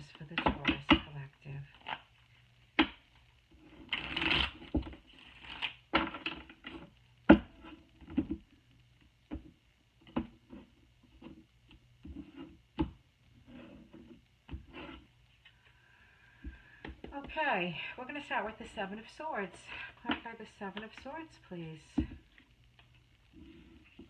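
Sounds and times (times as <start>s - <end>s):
cards being shuffled: 3.9s - 5.8s.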